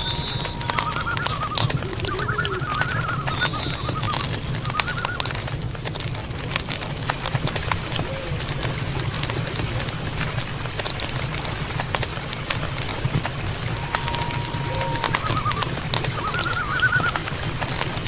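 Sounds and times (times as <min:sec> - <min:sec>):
warbling bird calls: 0:00.0 - 0:05.6, 0:07.4 - 0:10.1, 0:13.3 - 0:18.0
campfire crackling and popping: 0:00.0 - 0:18.0.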